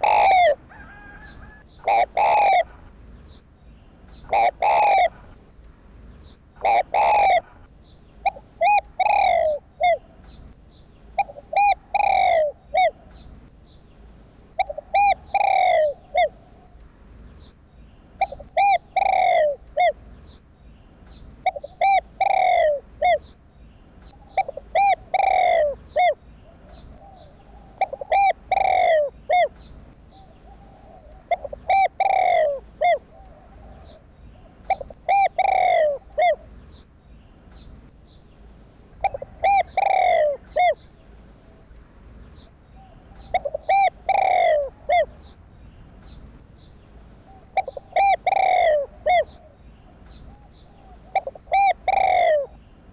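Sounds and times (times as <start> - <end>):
dove cooing: 0.0 - 2.9, 4.2 - 5.4, 6.6 - 10.3, 11.1 - 13.2, 14.6 - 16.8, 18.2 - 20.0, 21.4 - 23.3, 24.0 - 36.5, 39.0 - 41.7, 42.4 - 45.4, 47.2 - 52.6.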